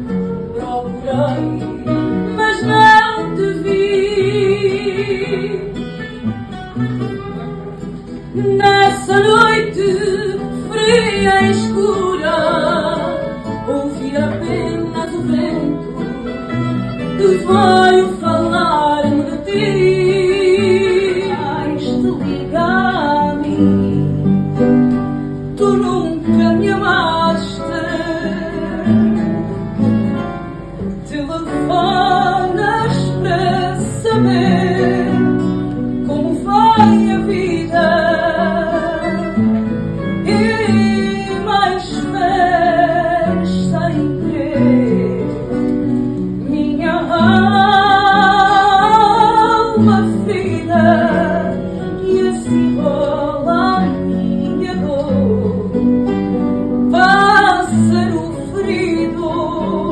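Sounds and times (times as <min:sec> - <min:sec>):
person singing with vibrato: 0:00.0 - 0:06.2, 0:17.0 - 0:24.2, 0:25.4 - 0:29.6, 0:31.0 - 0:39.5, 0:40.2 - 0:59.9
plucked guitars: 0:00.0 - 0:59.9.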